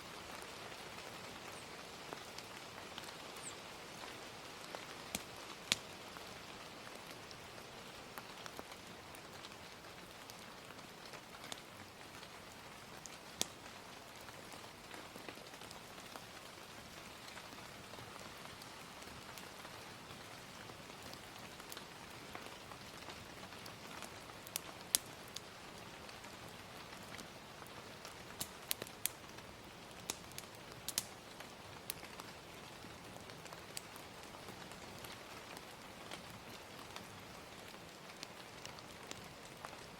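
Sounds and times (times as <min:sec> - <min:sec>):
soft rain: 0:00.0 - 0:39.9
wood fire popping and crackling: 0:00.3 - 0:39.9.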